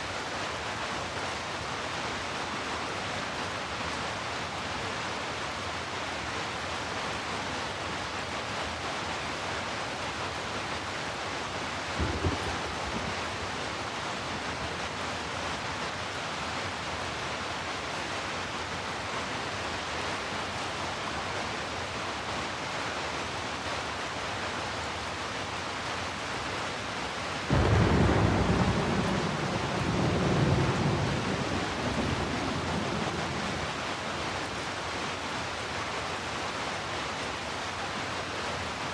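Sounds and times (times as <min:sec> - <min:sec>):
heavy rain: 0:00.0 - 0:38.9
thunder rumbling: 0:12.0 - 0:13.5, 0:27.5 - 0:33.9.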